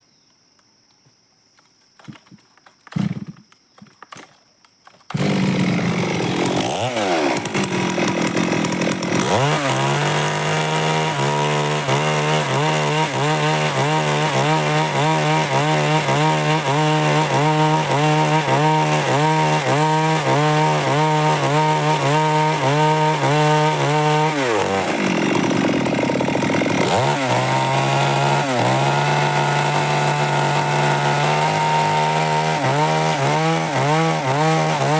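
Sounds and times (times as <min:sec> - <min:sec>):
chainsaw revving: 0:02.9 - 0:03.4, 0:05.1 - 0:34.9.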